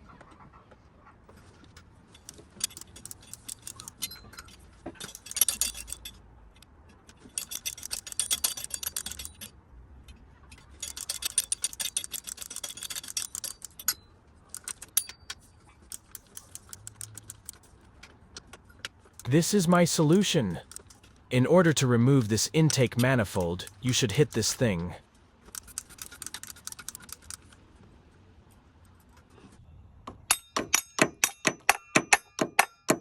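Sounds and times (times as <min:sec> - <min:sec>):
ratchet wrench clicking: 0:10.8 - 0:13.7, 0:15.9 - 0:17.6
metallic clicks: 0:15.9 - 0:17.6.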